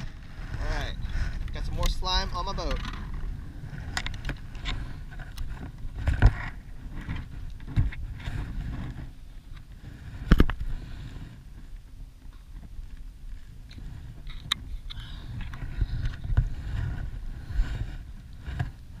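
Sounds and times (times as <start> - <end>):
kayak gear being handled: 0.0 - 19.0
water noise: 0.0 - 19.0
wind: 0.0 - 19.0.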